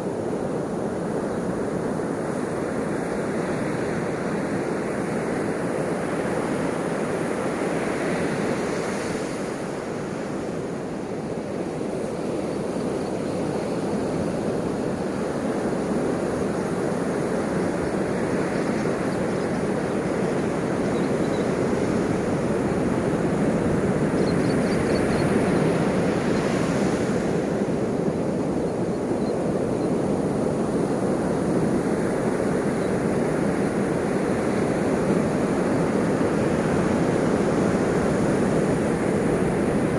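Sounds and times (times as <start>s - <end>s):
ocean waves breaking: 29.7s - 39.9s.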